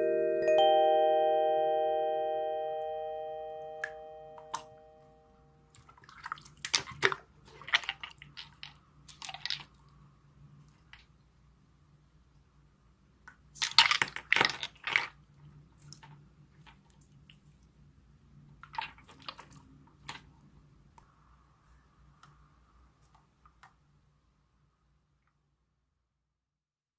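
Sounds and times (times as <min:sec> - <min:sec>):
wet slime squelches: 0:05.7 - 0:09.9, 0:18.5 - 0:20.4.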